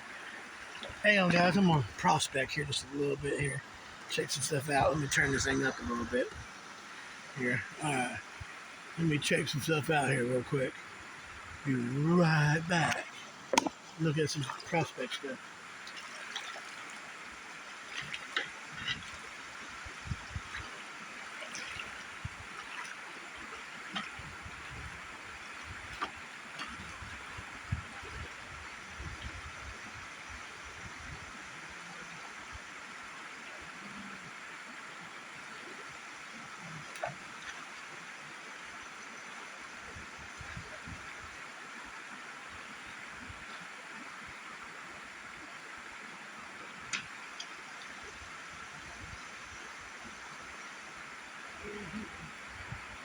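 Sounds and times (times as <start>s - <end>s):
river water rushing: 0.0s - 28.1s.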